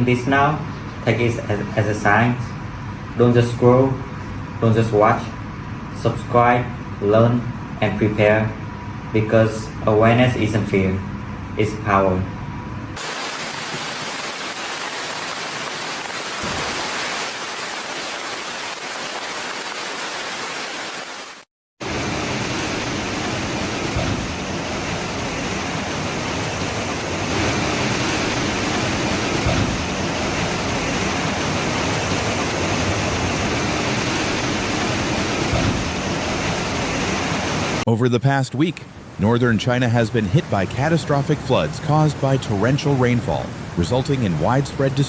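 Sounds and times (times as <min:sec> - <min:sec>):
rushing water: 0:13.0 - 0:45.0.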